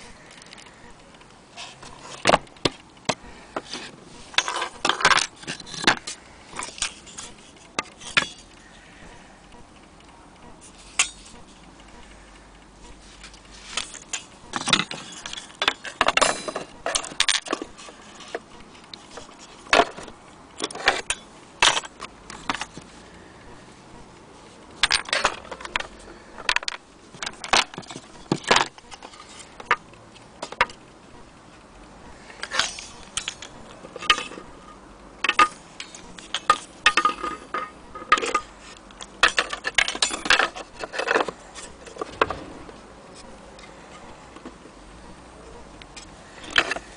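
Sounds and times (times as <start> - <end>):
small metallic rattles: 32.2 - 44.6.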